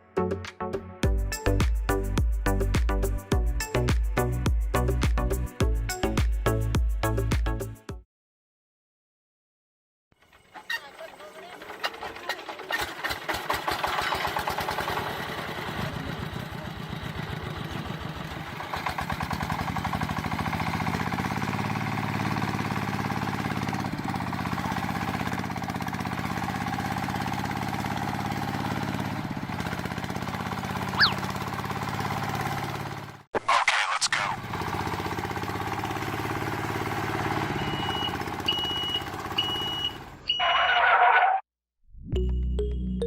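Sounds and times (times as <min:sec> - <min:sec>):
small motor running: 0:19.6 - 0:33.0.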